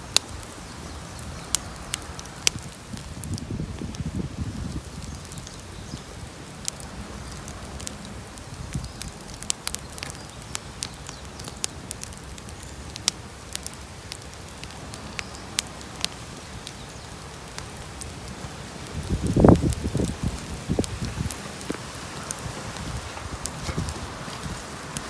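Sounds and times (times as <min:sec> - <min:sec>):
bonfire crackling: 0:00.0 - 0:25.0
low hiss: 0:00.0 - 0:25.0.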